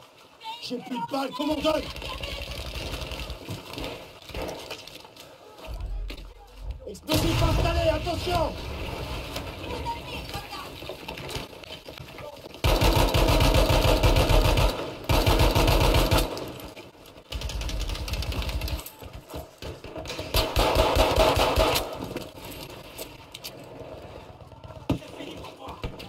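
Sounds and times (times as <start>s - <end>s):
airsoft gun firing full-auto: 12.6s - 16.6s, 20.3s - 22.1s.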